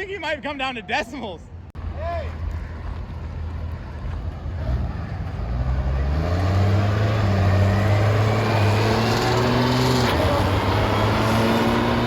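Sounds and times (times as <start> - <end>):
diesel engine revving under load: 4.6 - 12.0.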